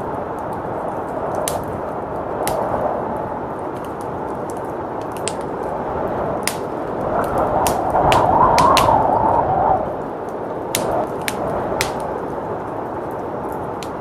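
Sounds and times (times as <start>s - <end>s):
blizzard wind rushing: 0.0s - 14.0s
wood fire crackling: 0.0s - 14.0s.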